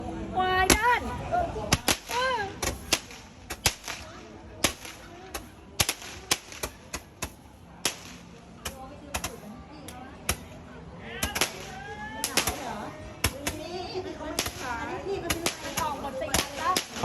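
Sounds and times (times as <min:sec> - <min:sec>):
firecrackers banging: 0:01.7 - 0:10.6, 0:11.2 - 0:17.0.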